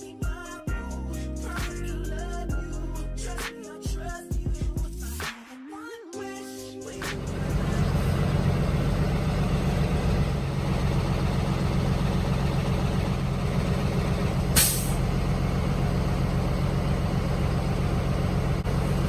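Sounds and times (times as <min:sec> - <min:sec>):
truck engine idling: 0:07.0 - 0:19.0
air brakes hiss: 0:14.3 - 0:15.3.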